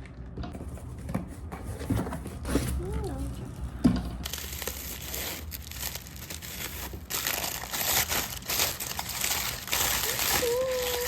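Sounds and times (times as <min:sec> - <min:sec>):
packaging crinkling and rustling: 0:04.2 - 0:11.0.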